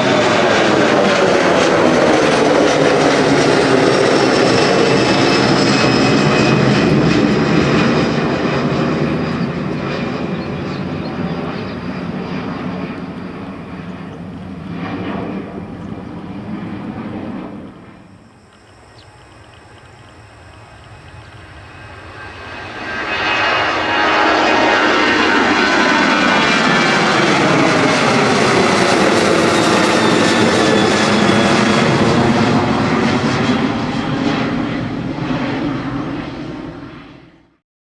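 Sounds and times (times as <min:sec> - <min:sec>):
jet engines roaring: 0:00.0 - 0:37.6.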